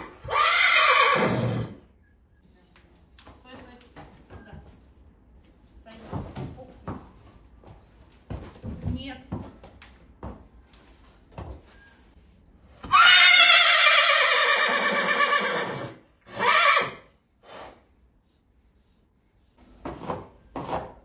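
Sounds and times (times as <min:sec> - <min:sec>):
horse neighing: 0:00.0 - 0:01.8, 0:12.8 - 0:17.0.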